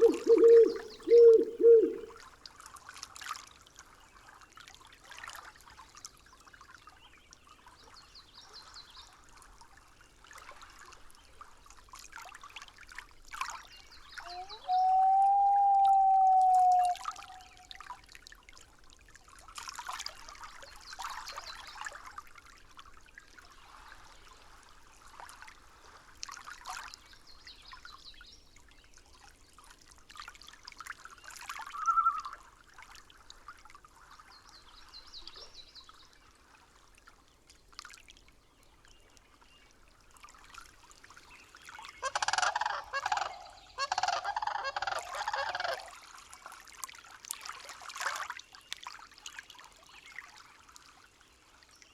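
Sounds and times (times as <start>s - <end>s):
rapid honking bird calls: 0.0s - 2.1s, 42.0s - 45.9s
faint bird calls: 0.0s - 2.2s, 14.2s - 17.8s, 31.7s - 32.4s, 42.0s - 45.9s.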